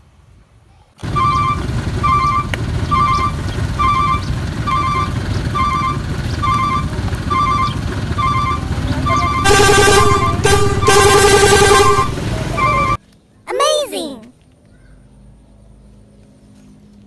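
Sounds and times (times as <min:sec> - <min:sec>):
diesel engine rumble: 0:01.0 - 0:13.0
reversing alarm beeping: 0:01.0 - 0:13.0.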